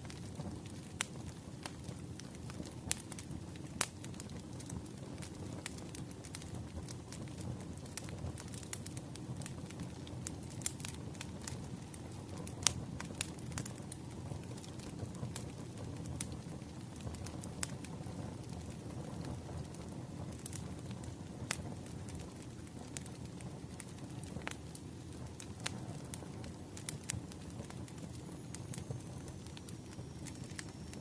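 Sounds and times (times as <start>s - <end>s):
wood fire crackling: 0.0s - 31.0s.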